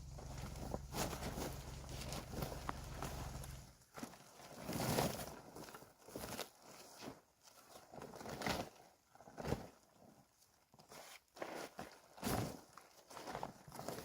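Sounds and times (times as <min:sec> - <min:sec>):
low hum: 0:00.0 - 0:03.8
plastic tarp crinkling: 0:00.0 - 0:09.8.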